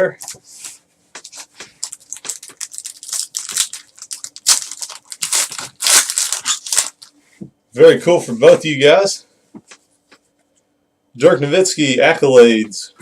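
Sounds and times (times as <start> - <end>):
cards rustling: 0.2 - 7.1
wrapper tearing and crinkling: 1.8 - 7.1.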